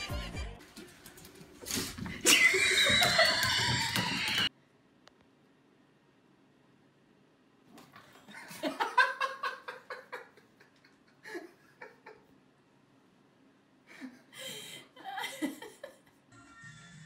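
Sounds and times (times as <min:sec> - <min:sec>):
person laughing: 0:02.1 - 0:04.5, 0:14.0 - 0:16.2.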